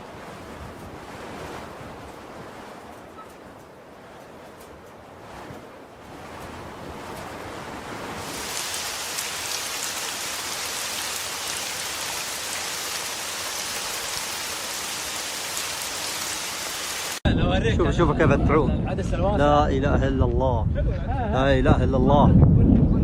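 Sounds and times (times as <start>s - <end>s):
heavy rain pouring: 8.2s - 17.2s.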